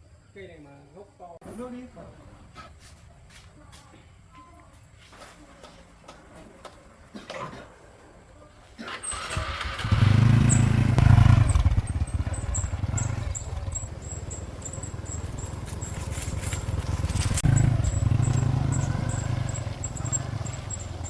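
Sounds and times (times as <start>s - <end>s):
engine running: 8.9s - 21.0s.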